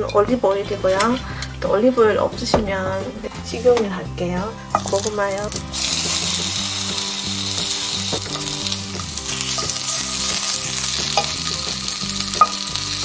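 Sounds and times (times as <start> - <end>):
vegetables sizzling in frying pan: 4.7 - 13.0.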